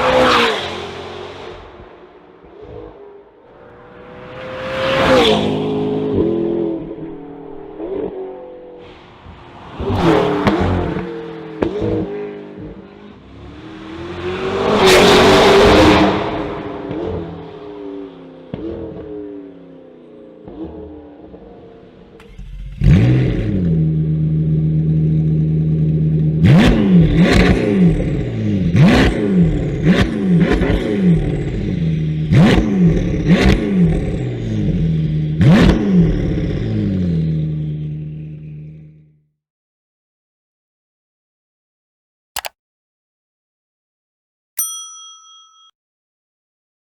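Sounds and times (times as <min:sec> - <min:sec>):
car revving past: 0:00.0 - 0:19.0.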